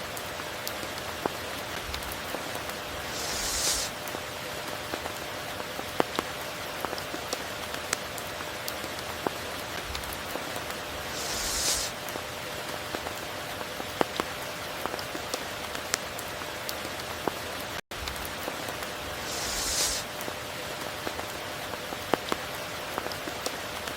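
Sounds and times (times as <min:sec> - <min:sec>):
sharp raindrop ticks: 0:00.0 - 0:23.9
steady rain hiss: 0:00.0 - 0:23.9
bright hiss: 0:02.9 - 0:04.0, 0:10.9 - 0:12.0, 0:19.0 - 0:20.2.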